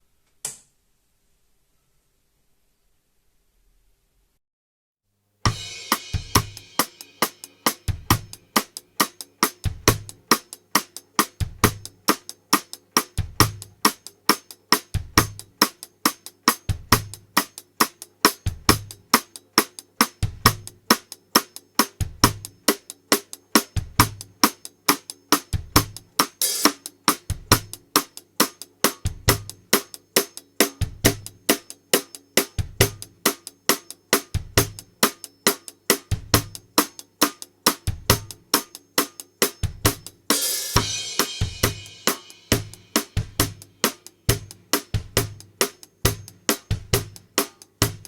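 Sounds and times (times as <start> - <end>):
bass drum kick: 5.5 - 6.8, 7.8 - 8.6, 9.6 - 10.3, 40.8 - 45.5
snare and hi-hat beat: 5.5 - 48.0.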